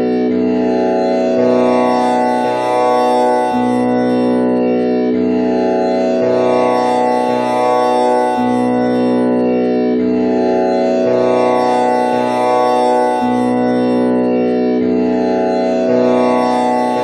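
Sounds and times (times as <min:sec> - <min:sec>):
tanpura drone: 0:00.0 - 0:17.0.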